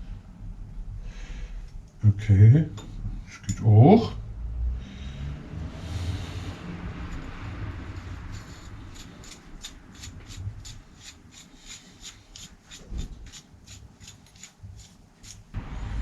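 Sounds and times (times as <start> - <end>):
loud low rumble: 4.1 - 8.9, 15.6 - 16.0
rhythmic rasping strokes: 7.0 - 15.5.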